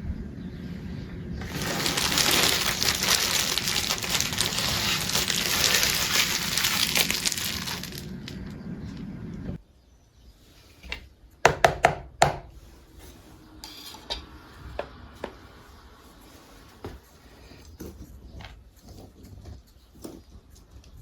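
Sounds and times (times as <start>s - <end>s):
objects clacking: 1.4s - 8.4s.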